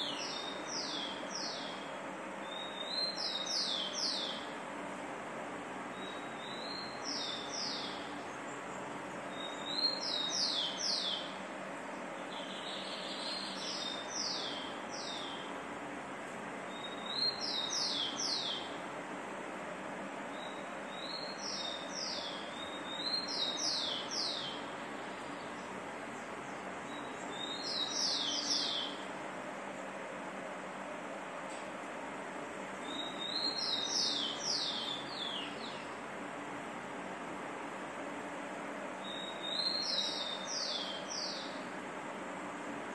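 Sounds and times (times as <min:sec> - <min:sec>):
bird calling: 0:16.7 - 0:18.7, 0:32.8 - 0:35.9, 0:39.0 - 0:41.6.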